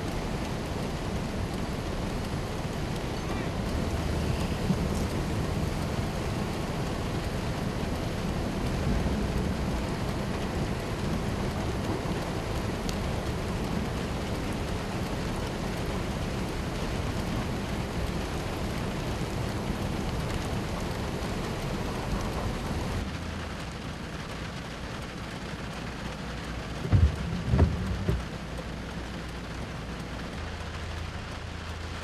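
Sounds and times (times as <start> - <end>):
heavy rain hissing: 0.0 - 32.0
loud low thumps: 26.8 - 28.3.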